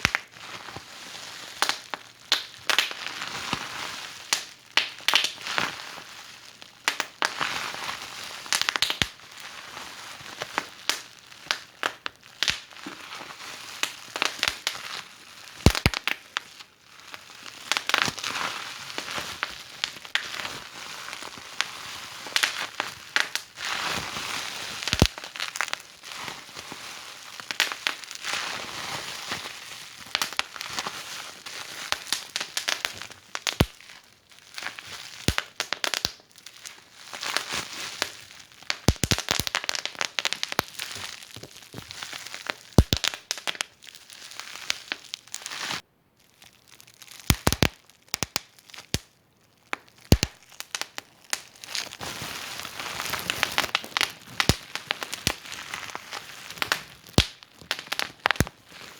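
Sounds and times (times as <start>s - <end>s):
wood fire crackling and popping: 0.0s - 0.3s, 1.6s - 3.0s, 4.3s - 5.4s, 6.9s - 7.3s, 8.5s - 9.2s, 10.8s - 12.7s, 15.6s - 16.2s, 22.3s - 23.6s, 24.8s - 25.8s, 27.5s - 28.0s, 30.0s - 30.6s, 31.9s - 33.8s, 34.7s - 43.8s, 47.2s - 49.1s, 49.7s - 58.9s.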